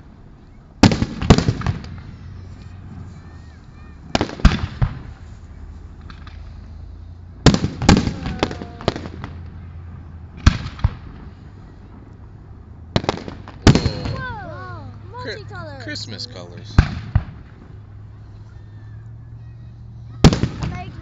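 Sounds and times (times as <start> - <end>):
fireworks bangs and crackles: 0.8 - 3.1, 3.7 - 5.3, 6.0 - 18.0, 20.2 - 21.0.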